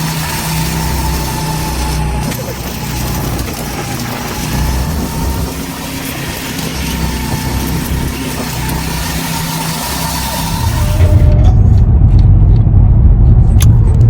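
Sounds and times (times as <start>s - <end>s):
go-kart engines running: 0.0s - 14.0s.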